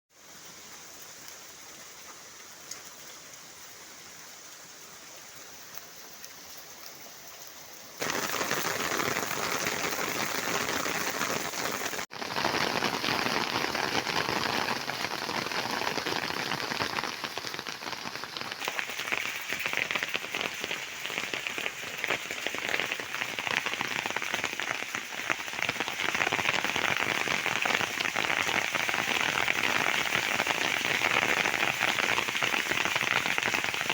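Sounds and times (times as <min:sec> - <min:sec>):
hailstones striking surfaces: 0:08.0 - 0:33.9.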